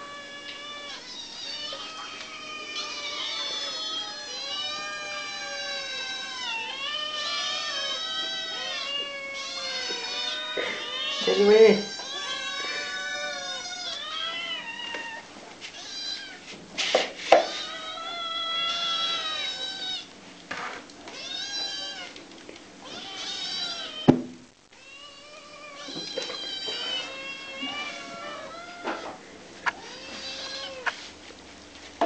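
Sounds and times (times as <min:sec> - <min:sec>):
kittens mewing: 0:00.0 - 0:16.4, 0:17.3 - 0:20.1, 0:22.8 - 0:24.1, 0:24.8 - 0:31.1
sharp knocks: 0:24.1 - 0:24.4.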